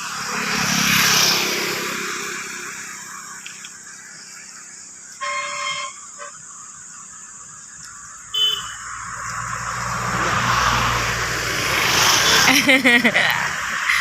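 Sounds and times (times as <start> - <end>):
vehicle passing: 0.0 - 3.4, 8.7 - 14.0
vehicle horn: 5.2 - 6.4, 8.4 - 8.8.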